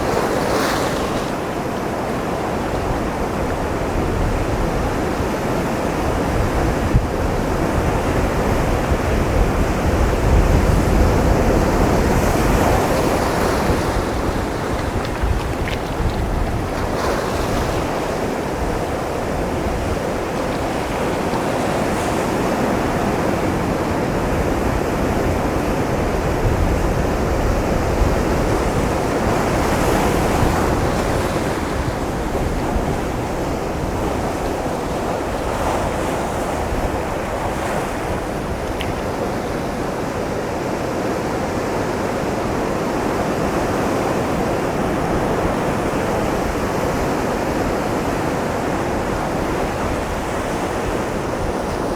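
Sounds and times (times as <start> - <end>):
surf breaking on rocks: 0.0 - 3.3, 10.0 - 23.6
wind buffeting microphone: 0.0 - 40.2.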